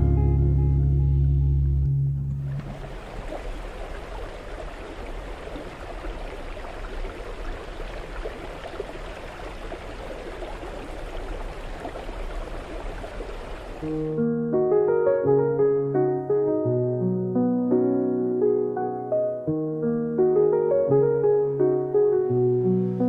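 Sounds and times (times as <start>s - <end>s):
running water rushing: 2.4s - 14.2s.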